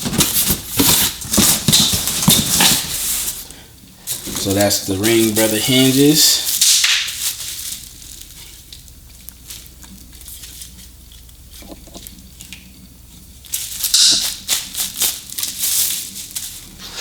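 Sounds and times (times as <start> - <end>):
packaging clicks and rustles: 0.0 - 3.5, 4.1 - 12.7.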